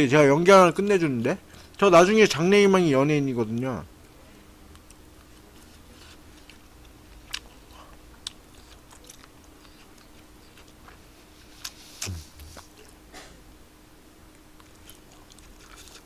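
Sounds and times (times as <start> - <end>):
faint steady hum: 0.0 - 16.0
mouth chewing smacks: 7.1 - 11.0.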